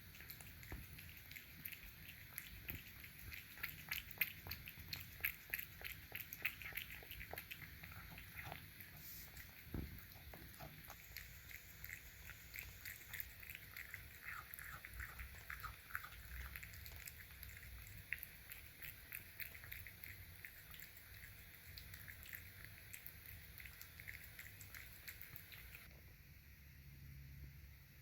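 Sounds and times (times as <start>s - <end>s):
cat chewing food: 0.0s - 25.9s.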